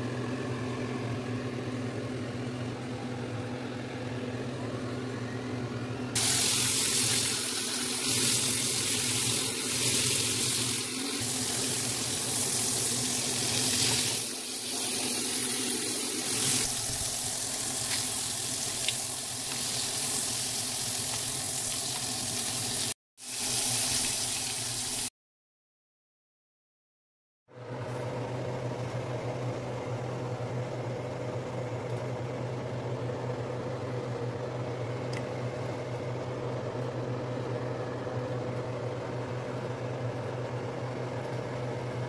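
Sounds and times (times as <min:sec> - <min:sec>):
shrimp sizzling in a frying pan: 0:06.2 - 0:25.1.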